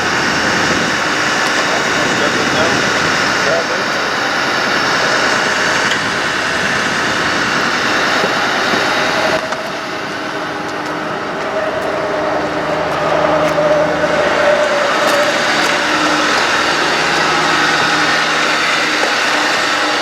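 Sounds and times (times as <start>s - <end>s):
loud rushing noise: 0.0s - 20.0s
steady whine: 0.0s - 20.0s
truck engine running: 0.0s - 20.0s.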